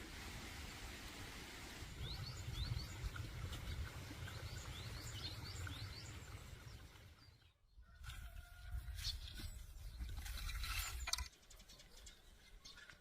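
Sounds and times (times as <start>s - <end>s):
small birds chirping: 1.9s - 8.0s, 8.8s - 13.0s.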